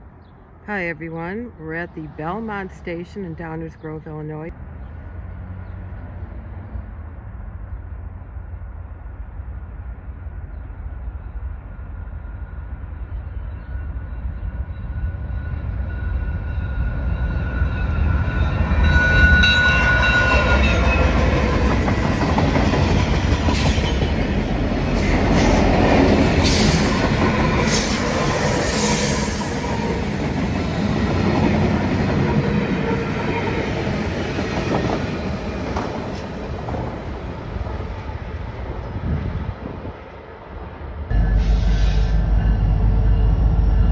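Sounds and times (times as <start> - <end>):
diesel locomotive rumble: 15.6 - 43.9.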